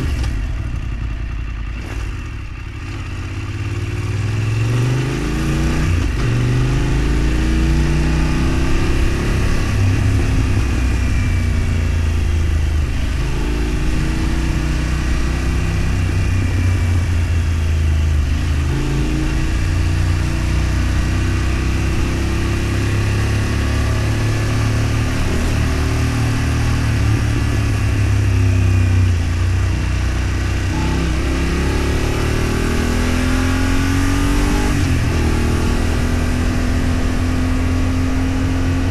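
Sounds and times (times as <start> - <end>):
road and wind noise: 0.0 - 38.9
vehicle engine accelerating: 1.8 - 38.9.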